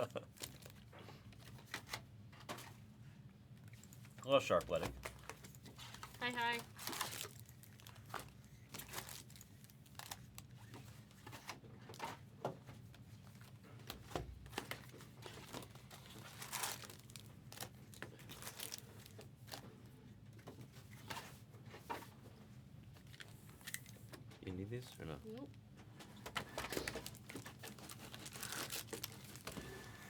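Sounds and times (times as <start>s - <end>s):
card pack wrappers crinkling: 5.2s - 10.7s, 14.7s - 19.6s, 26.4s - 30.0s.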